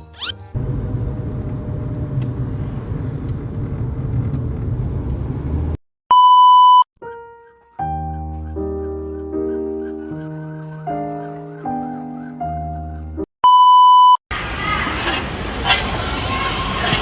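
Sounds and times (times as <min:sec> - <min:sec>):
loud steady beep: 0:06.1 - 0:06.8, 0:13.4 - 0:14.2.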